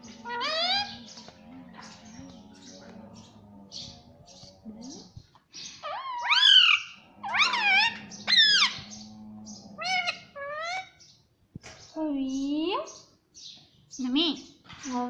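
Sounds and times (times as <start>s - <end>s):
parrot squawking: 0.0s - 4.0s, 5.8s - 9.1s, 9.8s - 11.0s.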